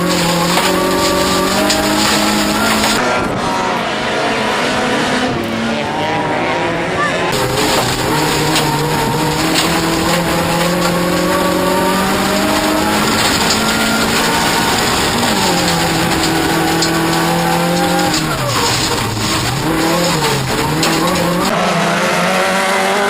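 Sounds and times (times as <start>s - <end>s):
race car engine under load: 0.0s - 23.0s.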